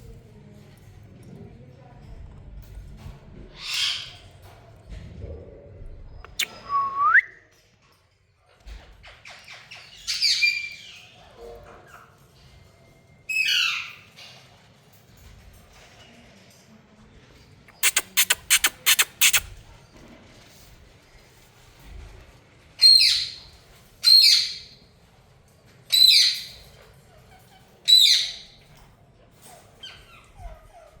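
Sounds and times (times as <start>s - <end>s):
parrot screeching and squawking: 3.6s - 4.2s, 17.7s - 19.6s.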